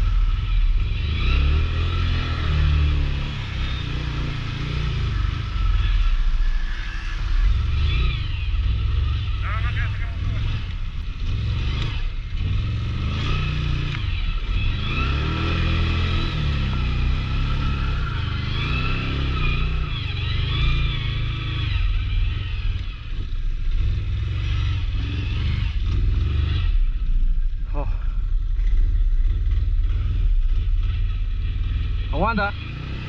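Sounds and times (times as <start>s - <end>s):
atv engine revving: 0.0s - 33.0s.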